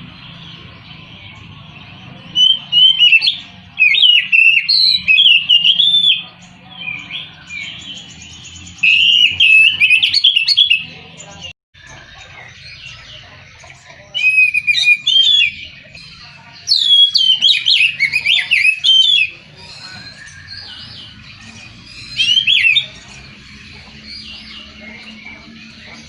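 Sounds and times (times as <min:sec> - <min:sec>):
bird whistled song phrases: 0:02.3 - 0:10.9, 0:14.2 - 0:25.4.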